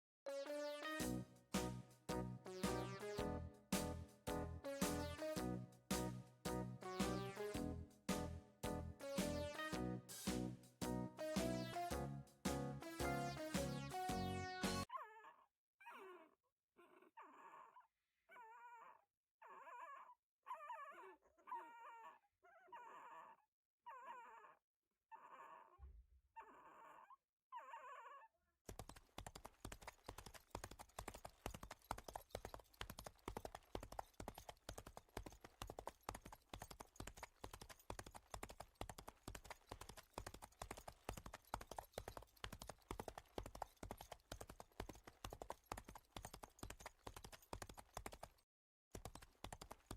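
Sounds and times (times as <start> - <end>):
dog yipping and whimpering: 14.9 - 25.8, 26.4 - 28.3
horse hooves clip-clopping: 28.7 - 48.3.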